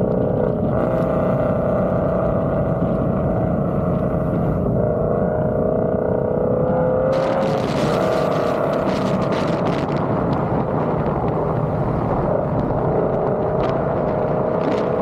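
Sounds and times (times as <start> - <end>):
car engine exhaust drone: 0.0 - 15.0.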